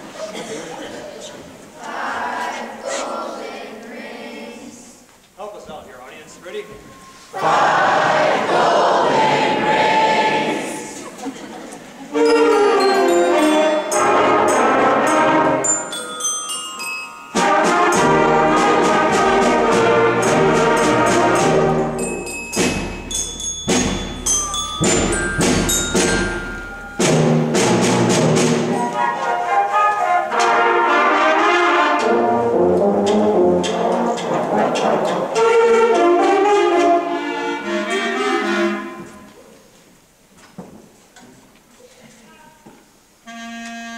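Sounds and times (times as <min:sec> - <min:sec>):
concert band playing: 0:12.1 - 0:16.1, 0:17.3 - 0:39.2
mallet percussion ringing: 0:12.2 - 0:18.6, 0:20.2 - 0:28.0.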